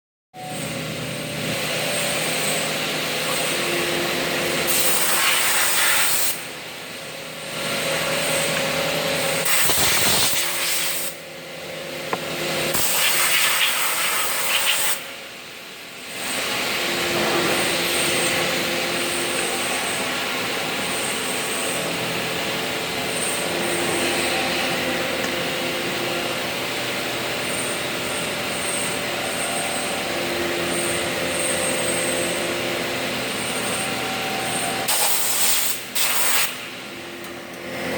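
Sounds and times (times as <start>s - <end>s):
lathes and machining centres running: 0.4s - 10.2s, 11.1s - 12.9s, 13.7s - 37.9s
coolant spray hiss: 4.7s - 6.4s, 9.4s - 11.2s, 12.7s - 15.0s, 34.9s - 36.6s.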